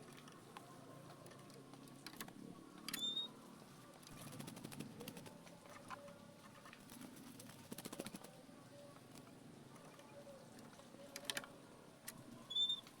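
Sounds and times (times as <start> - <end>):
bird short high chirp: 2.9 - 3.3, 12.5 - 12.9.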